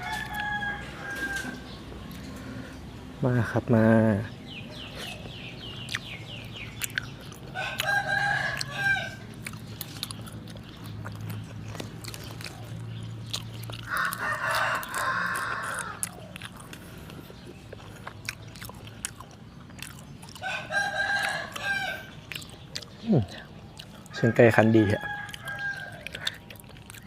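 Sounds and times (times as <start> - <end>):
rooster crowing: 0.0 - 1.8, 7.5 - 9.3, 13.8 - 16.3, 20.4 - 22.1, 24.1 - 26.3.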